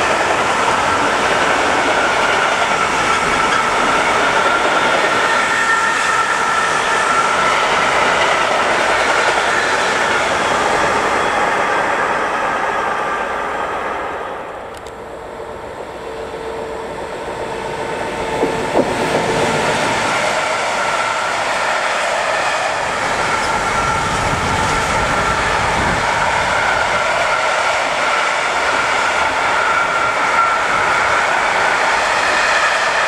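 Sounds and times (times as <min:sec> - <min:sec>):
electric locomotive hum: 0:00.0 - 0:33.0
train wheels rumbling on rails: 0:00.0 - 0:33.0.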